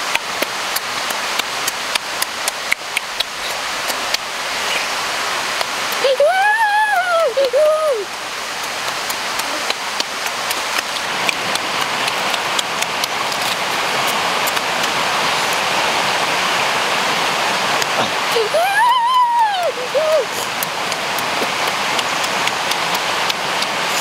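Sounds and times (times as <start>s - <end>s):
steady hiss: 0.0s - 24.0s
wet chewing and lip-smacking: 0.1s - 4.9s, 8.1s - 15.6s, 20.3s - 24.0s.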